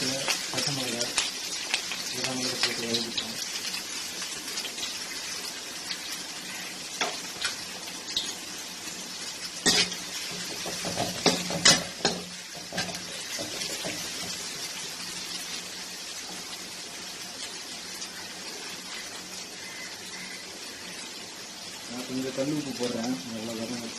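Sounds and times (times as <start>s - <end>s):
onions sizzling in oil: 0.0s - 23.9s
spoon scraping and knocking pan: 9.6s - 14.4s.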